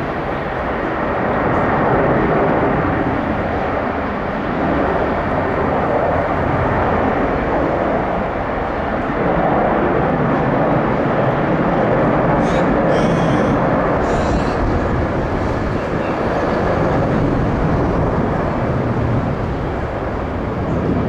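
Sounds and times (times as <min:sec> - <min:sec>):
jet engines at takeoff: 0:00.0 - 0:21.0.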